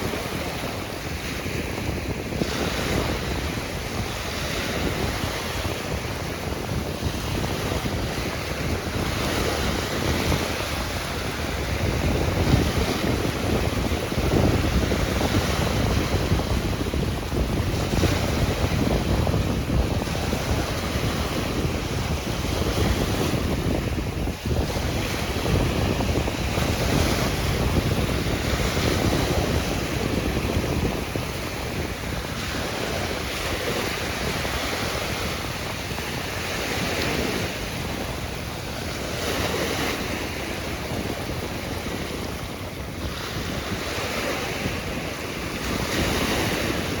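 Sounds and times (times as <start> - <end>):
ocean surf washing: 0.0 - 47.0
wind rumbling on microphone: 0.0 - 47.0.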